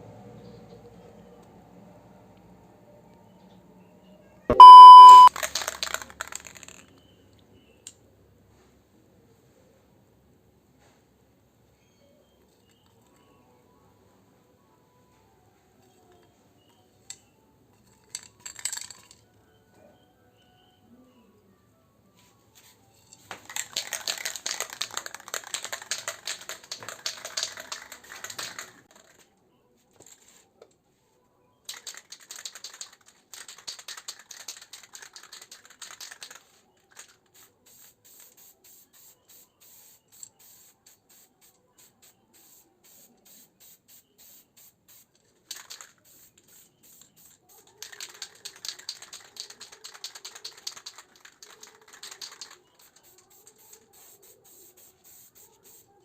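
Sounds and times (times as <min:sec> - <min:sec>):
aerosol spray can hissing: 0:37.4 - 0:47.4, 0:52.1 - 0:55.9.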